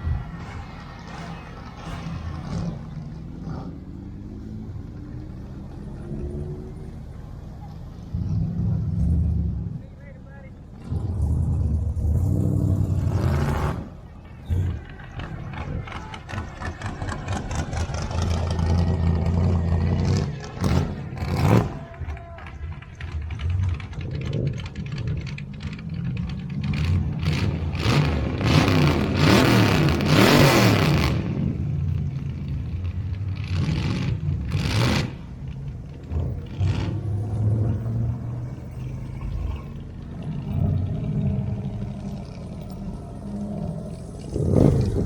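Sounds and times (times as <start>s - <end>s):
car engine running: 0.0s - 45.0s.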